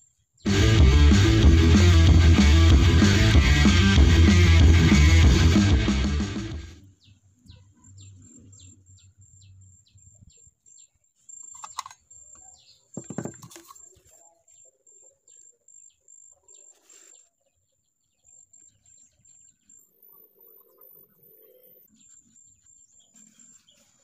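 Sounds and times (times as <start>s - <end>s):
small bird chirping: 6.8s - 24.0s
knocks and rustles of handling pipe: 13.0s - 13.8s.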